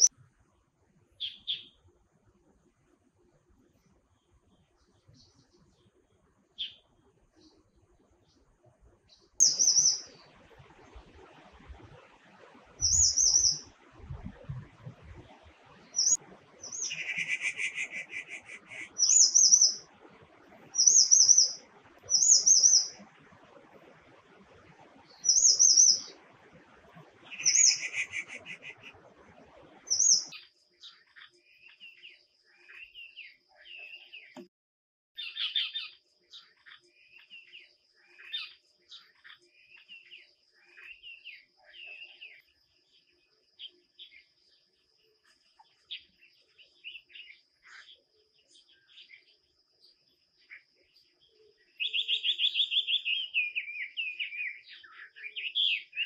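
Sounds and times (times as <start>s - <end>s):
birds calling: 9.4s - 10.3s, 12.8s - 13.8s, 15.1s - 23.1s, 25.1s - 26.2s, 26.9s - 29.1s, 29.8s - 30.3s
soft low bird chattering: 16.0s - 19.8s.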